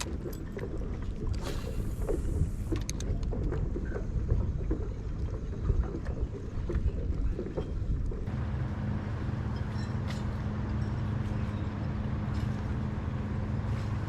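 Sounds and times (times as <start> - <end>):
water lapping against kayak hull: 0.0 - 8.4
wind rumble on microphone: 0.0 - 14.0.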